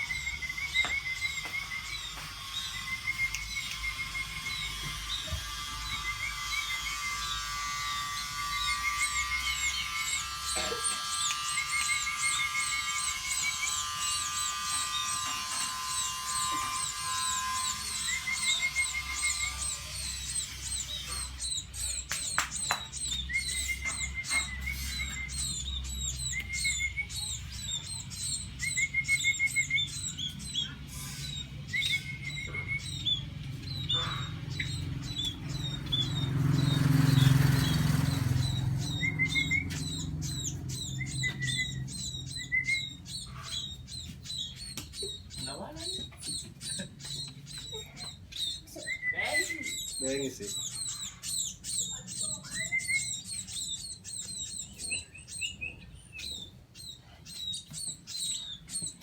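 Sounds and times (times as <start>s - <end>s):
steady humming tone: 0.0s - 36.5s
birds chirping: 0.0s - 59.0s.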